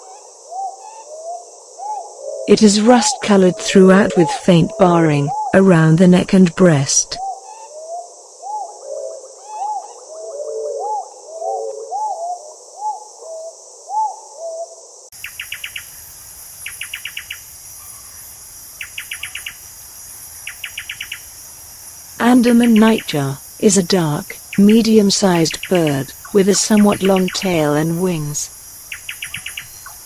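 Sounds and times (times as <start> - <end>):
high insect drone: 0.0 - 6.0, 7.1 - 30.0
dove cooing: 7.2 - 14.9, 22.2 - 30.0.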